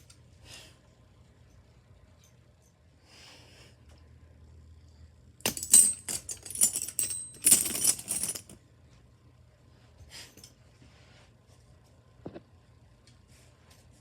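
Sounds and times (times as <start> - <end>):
toys clattering and clinking: 5.5 - 8.6.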